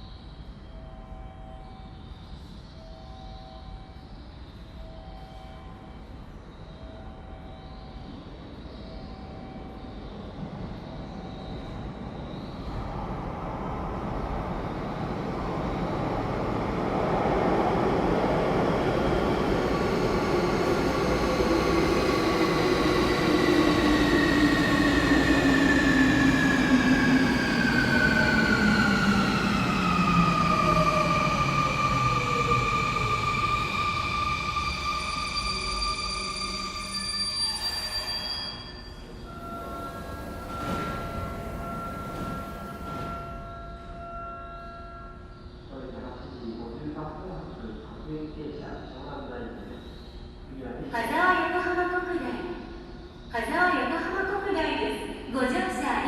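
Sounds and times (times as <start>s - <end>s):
train wheel and running noise: 39.0s - 49.5s.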